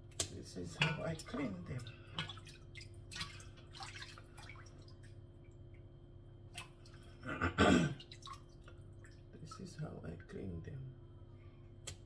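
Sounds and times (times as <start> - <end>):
steady low hum: 0.0 - 12.0
water dripping in a sink: 0.1 - 7.2, 8.0 - 10.4.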